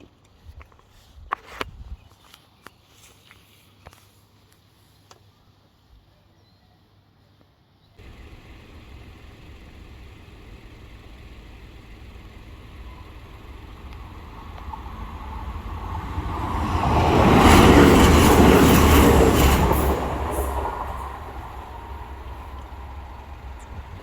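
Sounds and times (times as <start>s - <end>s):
train passing: 8.0s - 24.0s
wheels clicking over rail joints: 8.0s - 24.0s.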